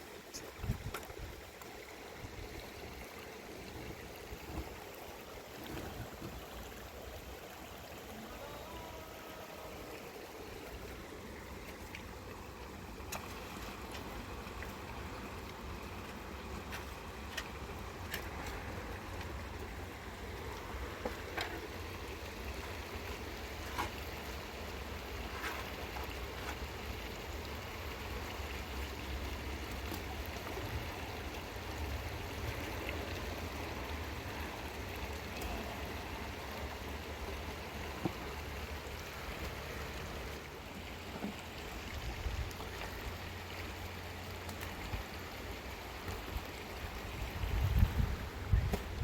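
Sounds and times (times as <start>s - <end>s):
floodwater rushing: 0.0s - 49.0s
rain: 0.0s - 49.0s
wind rumbling on microphone: 0.3s - 1.5s, 41.8s - 42.7s, 46.8s - 49.0s.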